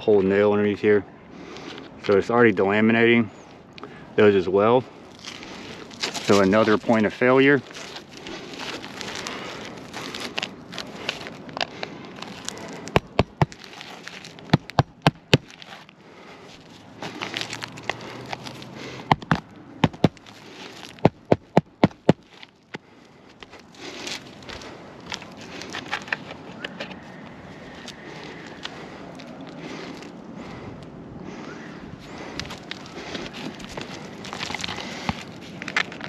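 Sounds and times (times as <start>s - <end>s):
shingles crackling and scraping: 4.8s - 27.1s, 32.0s - 36.0s.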